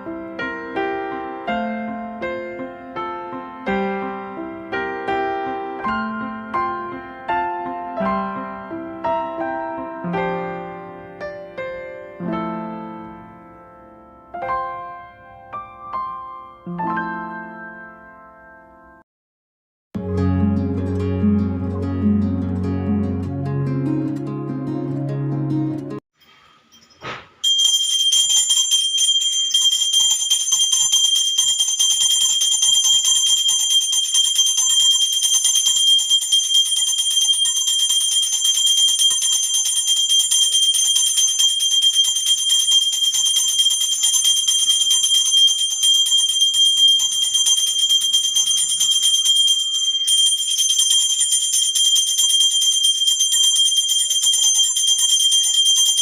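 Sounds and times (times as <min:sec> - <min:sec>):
hand bell ringing: 0:26.7 - 0:56.0.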